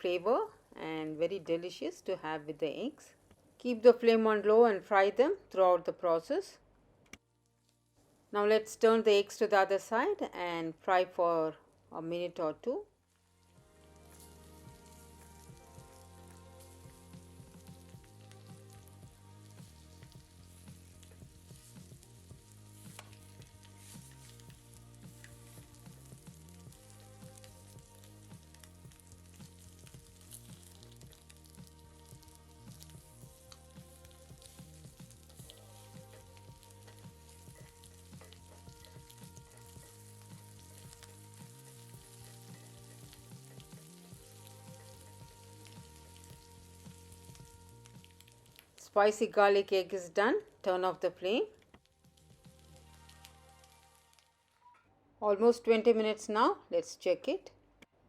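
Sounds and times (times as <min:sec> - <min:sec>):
soft background music: 0:07.3 - 0:56.7
food sizzling in oil: 0:13.1 - 0:49.8, 0:51.8 - 0:54.6.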